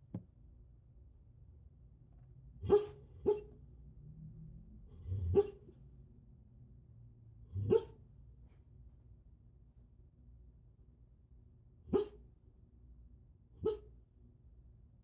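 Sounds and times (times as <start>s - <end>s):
dog barking in sleep: 2.6s - 3.6s, 4.9s - 5.8s, 7.5s - 8.0s, 11.9s - 12.2s, 13.6s - 14.0s.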